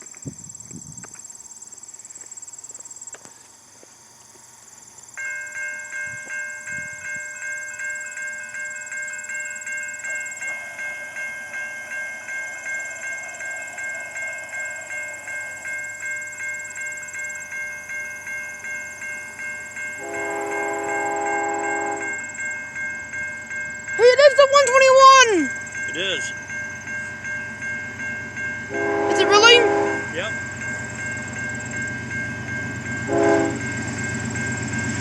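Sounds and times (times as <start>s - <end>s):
railroad crossing bell ringing: 5.1s - 35.0s
locomotive horn blast: 20.0s - 22.2s, 28.7s - 30.3s, 33.1s - 33.8s.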